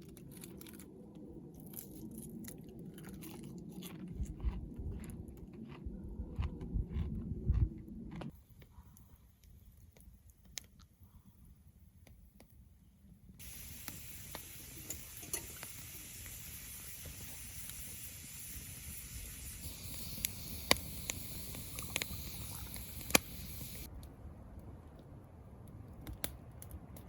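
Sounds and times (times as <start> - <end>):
food sizzling on hot stone: 13.4 - 23.9
sharp pops and clicks: 13.4 - 24.1.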